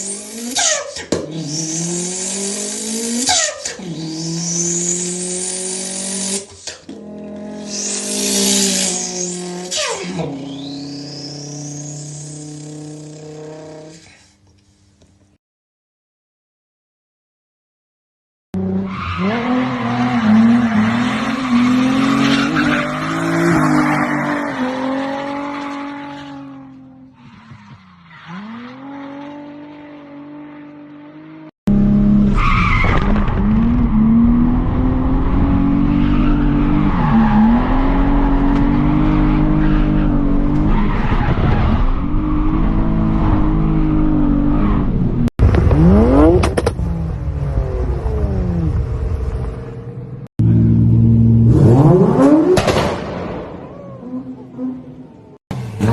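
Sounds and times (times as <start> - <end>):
tyres squealing and skidding: 0.0 - 6.9, 7.5 - 14.3, 18.6 - 30.9, 32.2 - 45.0
car engines revving: 0.0 - 14.0, 18.6 - 55.9.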